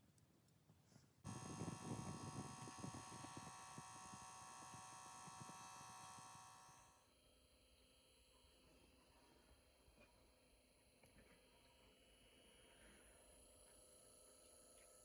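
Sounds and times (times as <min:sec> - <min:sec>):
blower fan whirring: 0:01.2 - 0:07.0.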